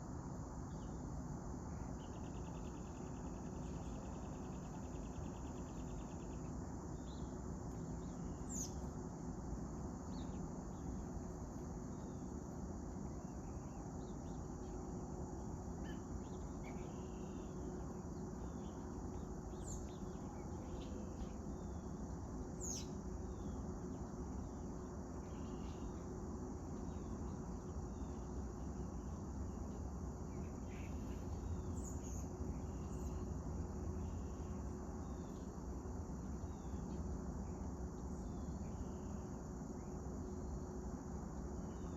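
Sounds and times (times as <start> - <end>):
insect chorus: 0.0 - 41.9.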